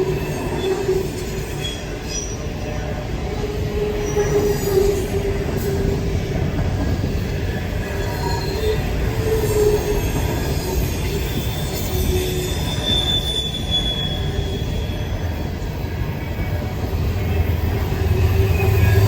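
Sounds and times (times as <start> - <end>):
wheel squeals: 0.0 - 2.8, 7.9 - 15.3
freight train rolling past: 0.0 - 19.0.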